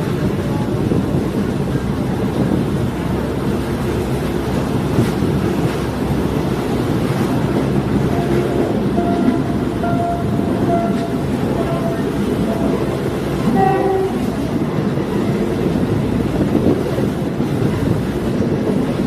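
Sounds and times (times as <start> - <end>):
train engine and wheels rumbling: 0.0 - 19.0.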